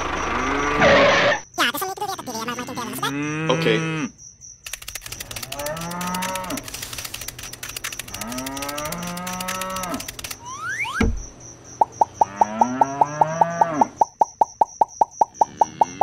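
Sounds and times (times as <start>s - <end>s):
fast clicking rattle: 4.6s - 10.4s
cattle mooing: 5.5s - 6.6s, 8.2s - 10.0s, 12.2s - 13.9s.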